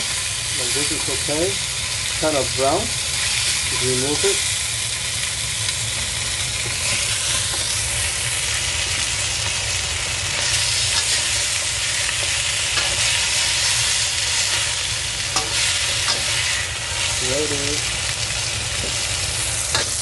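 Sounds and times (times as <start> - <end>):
chicken sizzling in hot oil: 0.0 - 20.0
metal utensils clicking on wok: 19.7 - 20.0.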